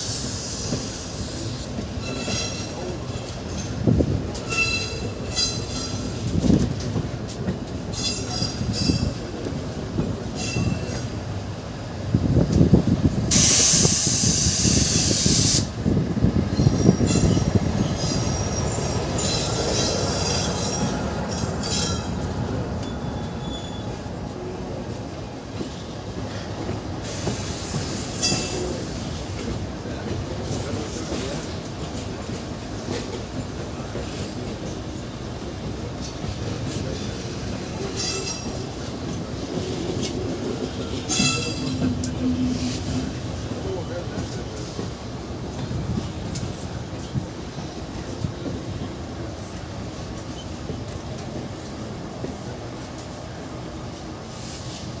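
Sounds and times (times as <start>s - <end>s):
train rumbling: 0.0s - 55.0s
steel wheels squealing: 0.1s - 3.8s, 4.4s - 6.2s, 7.9s - 9.2s, 10.3s - 11.2s, 16.5s - 24.1s, 36.8s - 38.8s, 40.8s - 43.2s.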